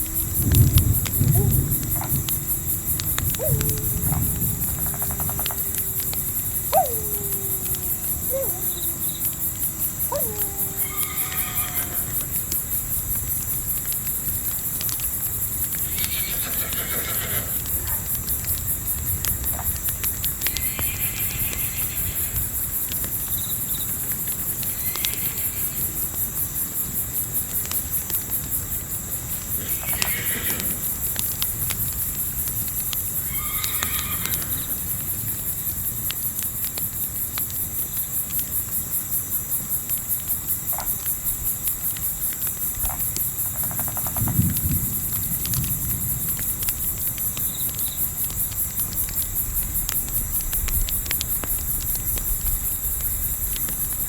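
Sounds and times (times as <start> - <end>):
campfire crackling: 0.0 - 20.8, 26.5 - 54.0
insects chirring: 0.0 - 54.0
long calls falling in pitch: 3.3 - 12.3.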